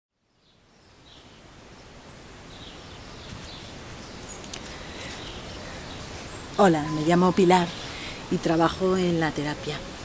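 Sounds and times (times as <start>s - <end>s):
bird chirps: 0.4s - 10.0s.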